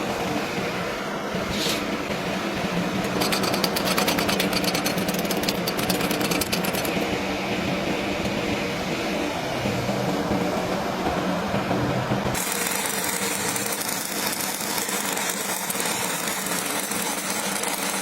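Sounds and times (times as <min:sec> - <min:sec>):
machine hum: 0:00.0 - 0:18.0
welding arc crackling: 0:03.0 - 0:07.2, 0:12.3 - 0:18.0.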